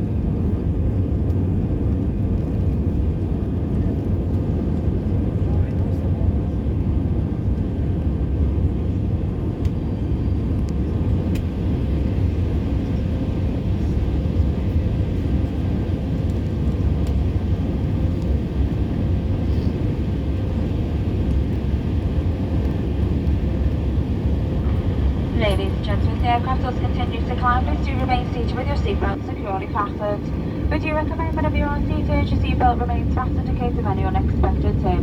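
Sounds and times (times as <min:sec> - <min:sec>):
jet engines and rushing air: 0:17.1 - 0:35.0
faint steady hum: 0:23.1 - 0:35.0.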